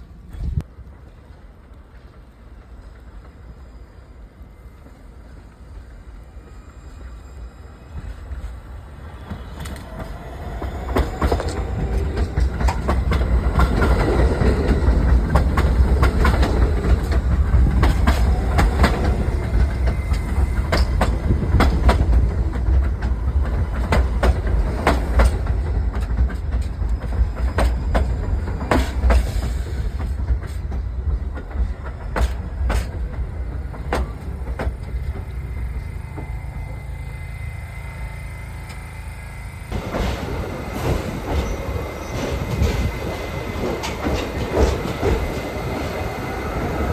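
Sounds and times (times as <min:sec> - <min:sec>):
subway train rumbling past: 0:00.0 - 0:46.9
wheels clacking over rail joints: 0:08.1 - 0:36.4, 0:39.7 - 0:46.9.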